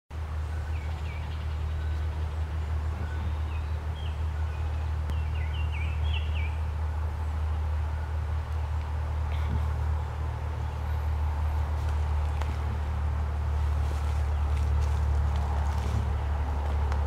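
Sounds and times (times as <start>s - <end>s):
steady low hum: 0.2s - 17.0s
bird chirping: 0.4s - 7.7s.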